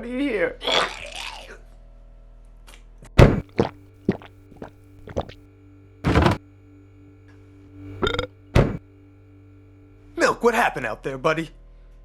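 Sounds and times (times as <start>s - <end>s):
knocks and thunks in refrigerator: 3.2s - 3.7s, 6.1s - 6.4s, 8.1s - 8.8s.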